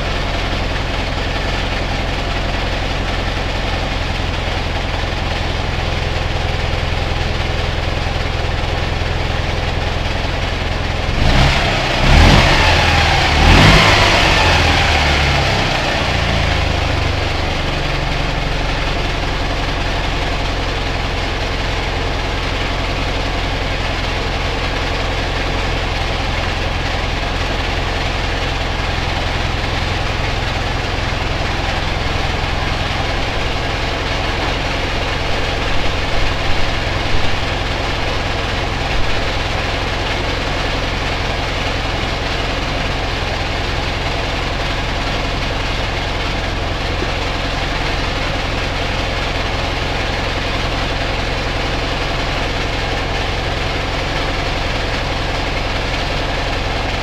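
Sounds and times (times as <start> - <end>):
motorcycle engine idling: 0.0 - 57.0
motorcycle engine revving: 10.5 - 19.1, 26.4 - 51.5.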